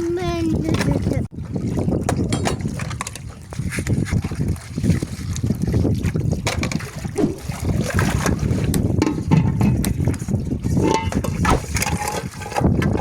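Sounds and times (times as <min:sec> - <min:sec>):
water sloshing in a basin: 0:00.0 - 0:13.0
dishes clinking: 0:09.0 - 0:09.8, 0:10.8 - 0:13.0.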